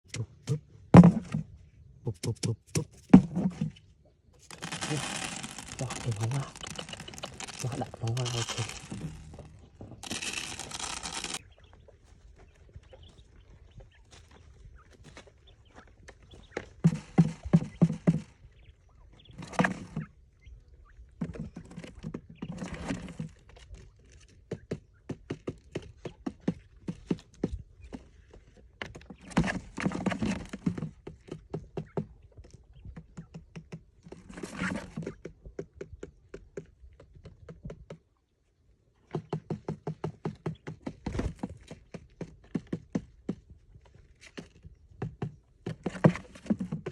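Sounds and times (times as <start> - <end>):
rapid light tapping and knocking: 39.1 - 43.5.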